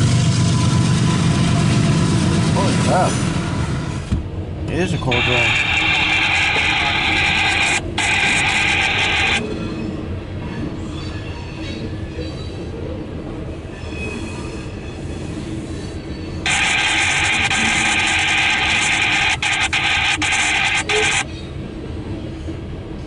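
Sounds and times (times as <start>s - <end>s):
freight cars rumbling past: 0.0s - 5.2s
loud hiss: 16.5s - 21.2s.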